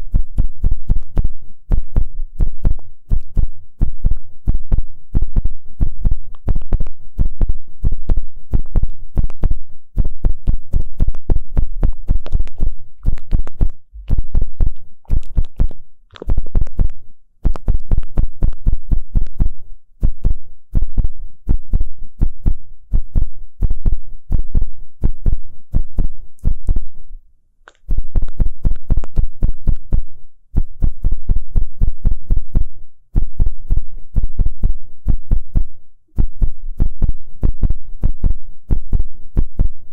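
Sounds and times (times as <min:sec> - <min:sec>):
deep thumpy rubs: 0:00.0 - 0:16.9
ear pick scratching microphone: 0:00.0 - 0:27.1, 0:27.7 - 0:39.9.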